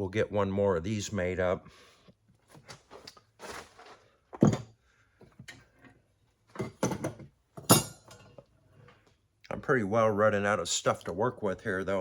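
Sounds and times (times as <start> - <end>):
tools knocking and clunking: 6.5 - 8.4.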